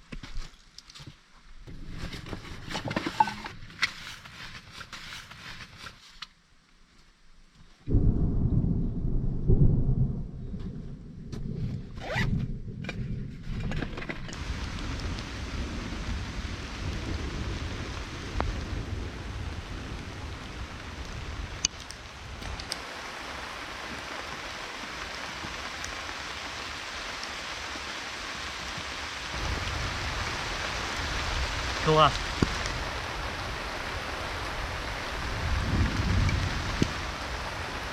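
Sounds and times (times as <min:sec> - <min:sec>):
steady rain: 0:00.0 - 0:37.9
thunder rumbling: 0:07.9 - 0:27.1, 0:28.5 - 0:37.9.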